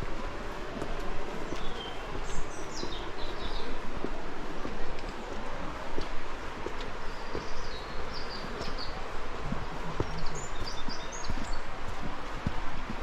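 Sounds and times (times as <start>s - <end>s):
footsteps on stone steps: 0.0s - 13.0s
small birds chirping: 1.5s - 3.8s, 7.1s - 11.6s.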